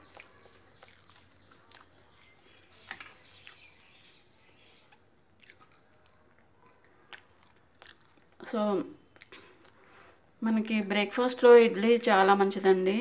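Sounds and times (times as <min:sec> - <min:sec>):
faint chewing and mouth clicks: 0:00.0 - 0:04.0, 0:04.8 - 0:08.4, 0:09.0 - 0:10.3.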